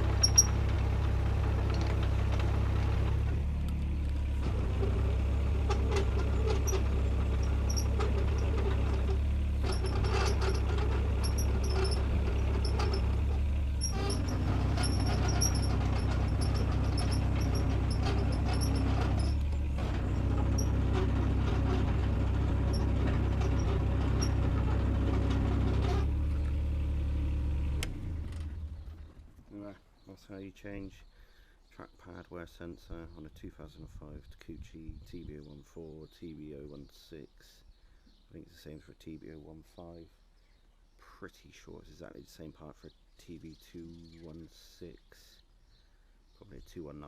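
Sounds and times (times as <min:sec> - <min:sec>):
excavator diesel engine running: 0:00.0 - 0:29.1
excavator tracks and hydraulics: 0:00.0 - 0:29.2.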